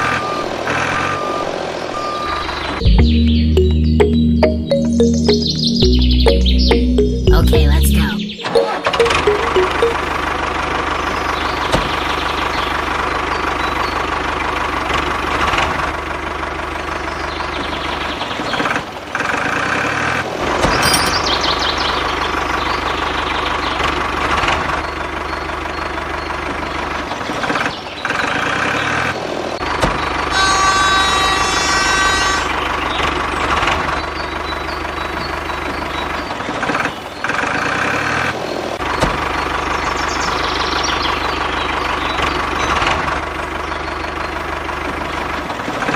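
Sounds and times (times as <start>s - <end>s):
held pitched tone: 2.8s - 10.2s.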